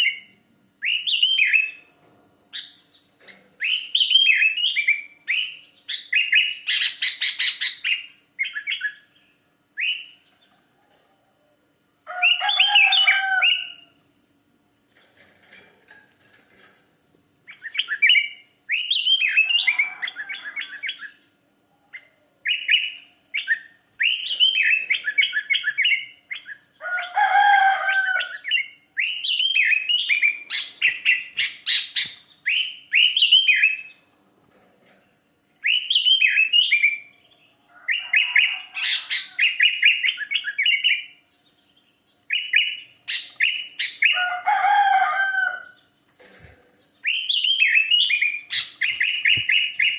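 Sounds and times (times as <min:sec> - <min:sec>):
bird chirpy whistled song: 0:00.0 - 0:01.8, 0:03.6 - 0:10.3, 0:17.5 - 0:21.3, 0:22.0 - 0:26.7, 0:28.2 - 0:34.0, 0:35.6 - 0:41.4, 0:42.3 - 0:44.2, 0:47.0 - 0:49.9
lower coarse bird call: 0:12.1 - 0:14.0, 0:17.5 - 0:21.2, 0:21.9 - 0:33.9, 0:35.6 - 0:41.2, 0:47.0 - 0:49.9.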